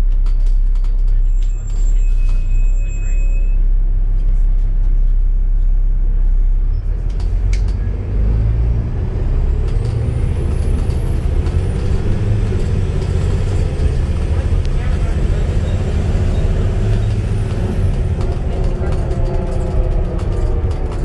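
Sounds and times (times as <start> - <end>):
bus engine rumbling: 0.0 - 21.0.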